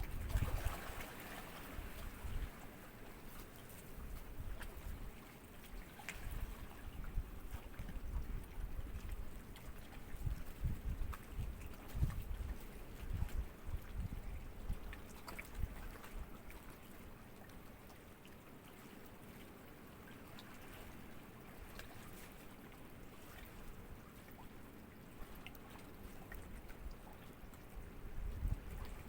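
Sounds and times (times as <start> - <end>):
wind buffeting microphone: 0.0 - 1.0, 6.3 - 14.9, 27.8 - 29.0
sea ripples lapping: 0.0 - 29.0.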